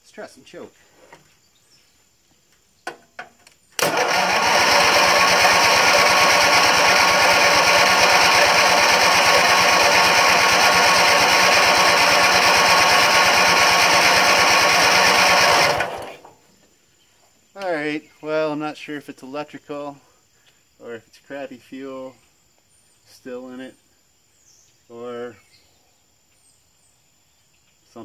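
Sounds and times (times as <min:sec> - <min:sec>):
electric starter cranking engine: 0:03.8 - 0:16.3.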